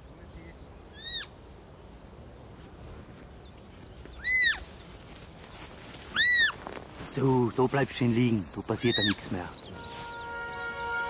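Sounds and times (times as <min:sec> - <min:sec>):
insects chirping: 0:00.0 - 0:11.0
deer fawn squeaking calls: 0:00.9 - 0:01.4, 0:04.1 - 0:04.9, 0:06.0 - 0:06.7, 0:08.7 - 0:10.8.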